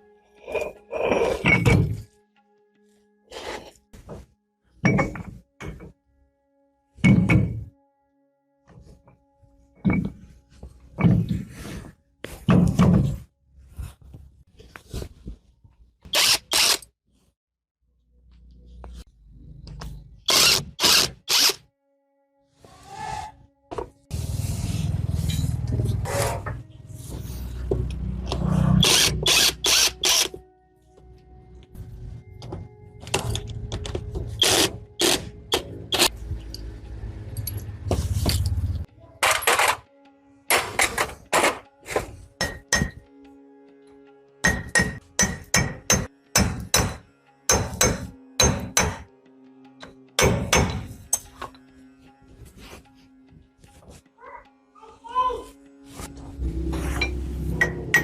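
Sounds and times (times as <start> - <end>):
power tool running: 16.2 - 16.8
hammer striking metal: 42.4 - 43.0, 44.4 - 49.1, 50.2 - 51.5, 56.9 - 58.0.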